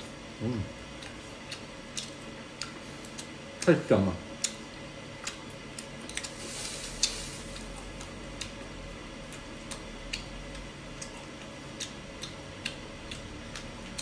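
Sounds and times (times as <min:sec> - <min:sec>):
steady low hum: 0:00.0 - 0:14.0
wet mouth clicks chewing: 0:00.9 - 0:03.7, 0:04.4 - 0:06.4, 0:07.0 - 0:08.7, 0:09.3 - 0:14.0.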